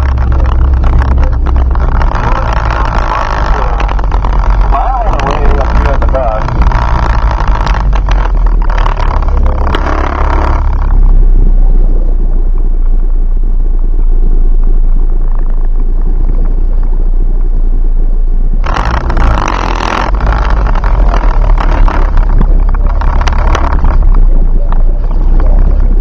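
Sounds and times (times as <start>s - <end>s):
loud rushing noise: 0.0s - 17.6s
car engine idling: 0.0s - 26.0s.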